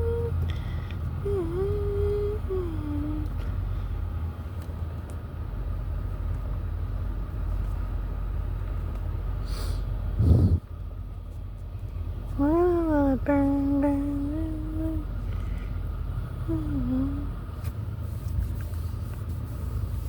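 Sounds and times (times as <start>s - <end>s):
person humming: 0.0s - 0.4s, 1.2s - 3.4s, 12.4s - 15.1s, 16.4s - 17.4s
car wash machinery rumbling: 0.0s - 20.0s.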